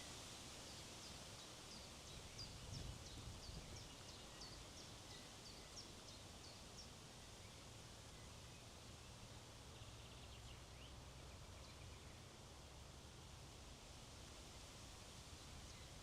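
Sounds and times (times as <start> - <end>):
wind on microphone: 2.4 - 3.8.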